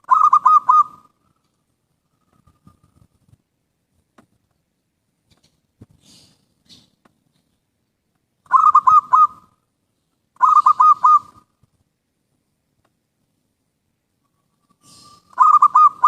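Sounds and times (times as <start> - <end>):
dove cooing: 0.0 - 1.2, 8.5 - 9.6, 10.4 - 11.5, 14.6 - 16.0.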